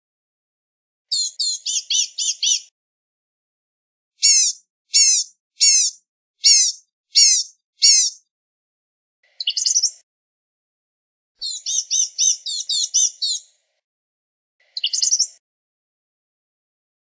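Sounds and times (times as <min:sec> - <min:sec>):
bird twittering: 0:01.1 - 0:02.7, 0:04.2 - 0:08.2, 0:11.4 - 0:13.5, 0:14.8 - 0:15.4
bird calling thin high notes: 0:04.2 - 0:08.2.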